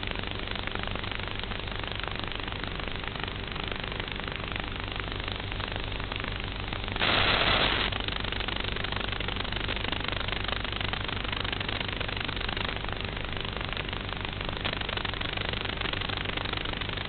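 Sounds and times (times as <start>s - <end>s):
motor and propeller drone: 0.0s - 17.0s
hiss: 7.0s - 8.0s.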